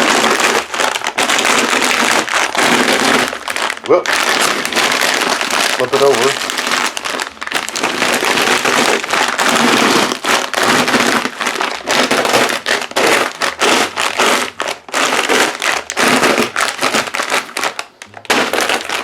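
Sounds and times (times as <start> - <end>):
plastic bag crinkling: 0.0 - 19.0
pretzels crunching: 0.0 - 19.0.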